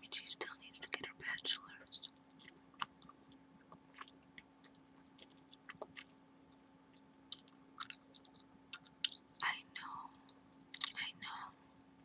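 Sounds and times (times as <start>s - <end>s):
low steady hum: 0.0s - 12.0s
gum chewing mouth clicks: 0.9s - 9.5s, 10.1s - 11.1s.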